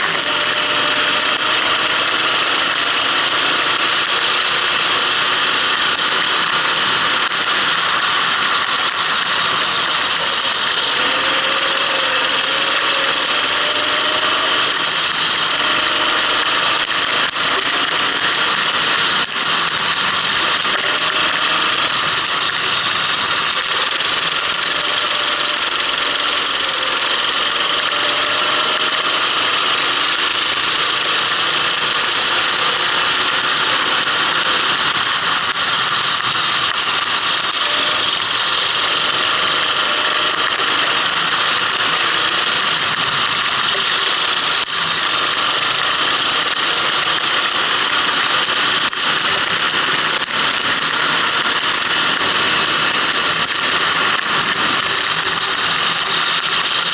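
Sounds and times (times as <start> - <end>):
kart engine running at speed: 0.0 - 56.9
rush of noise: 0.0 - 56.9.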